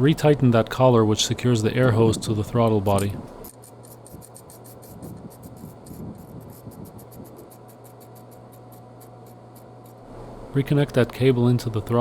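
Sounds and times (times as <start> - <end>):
steady low hum: 0.0 - 12.0
scratching and handling noises: 2.6 - 10.1
rapid high ticking: 3.0 - 10.0.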